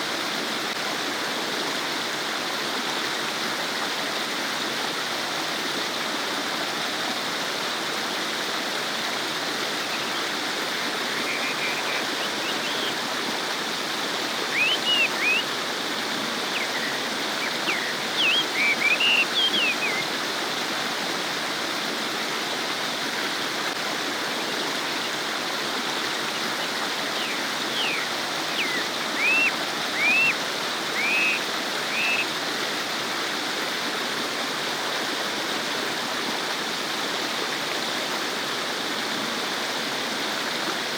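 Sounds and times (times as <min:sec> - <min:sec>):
water flowing over stones: 0:00.0 - 0:40.9.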